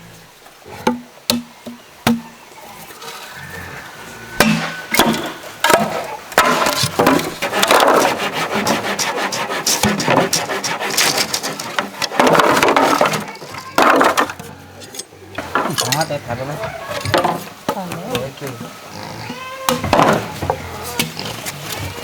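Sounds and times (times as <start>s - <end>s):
rasping strokes on wood: 4.3s - 13.7s.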